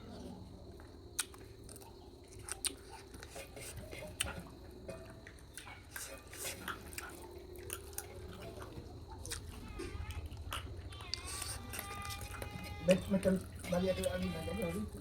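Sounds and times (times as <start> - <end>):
person chewing food: 0.7 - 13.8
wet mouth smacks: 1.2 - 2.9.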